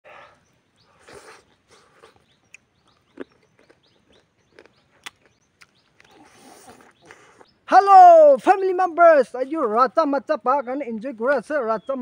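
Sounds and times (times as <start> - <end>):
faint bird chirps: 0.1 - 8.4
person chewing: 1.0 - 7.5.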